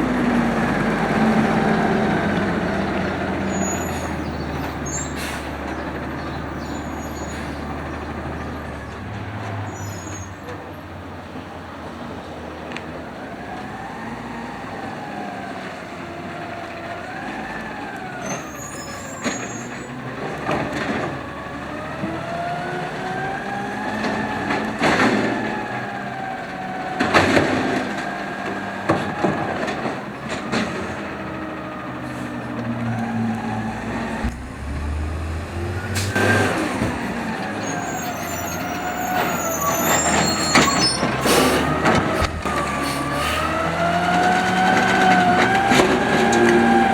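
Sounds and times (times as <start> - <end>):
hydraulics whining: 0.0 - 10.8, 13.4 - 46.9
garbage truck engine running: 0.0 - 12.1, 13.0 - 46.9
metal and bins banging: 28.9 - 46.9.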